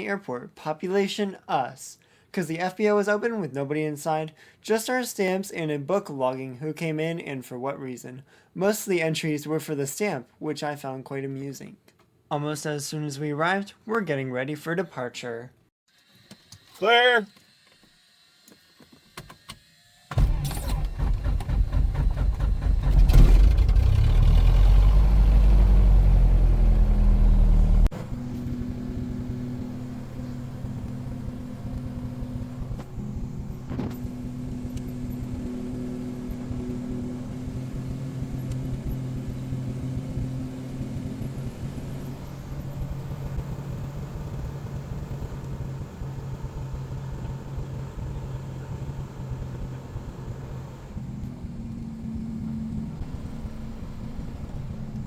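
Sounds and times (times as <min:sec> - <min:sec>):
aircraft piston engine running: 0:27.9 - 0:55.0.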